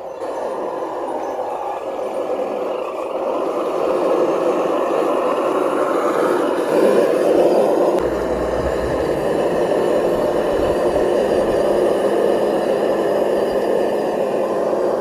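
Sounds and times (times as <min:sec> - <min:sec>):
low rumble: 0:08.0 - 0:12.8.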